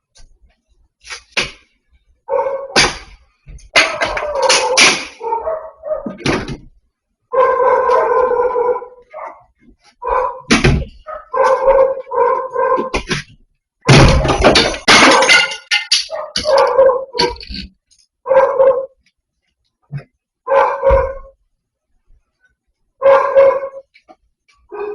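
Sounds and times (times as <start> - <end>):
dog barking: 2.3 - 2.8, 3.8 - 6.2, 7.3 - 13.0, 16.1 - 17.4, 18.2 - 19.0, 20.4 - 21.4, 23.0 - 23.9, 24.7 - 24.9.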